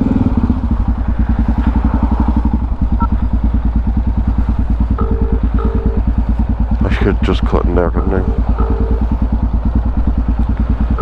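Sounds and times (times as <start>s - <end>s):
motorcycle engine idling: 0.0s - 11.0s
phone ringback tone: 5.0s - 6.0s, 7.9s - 9.2s.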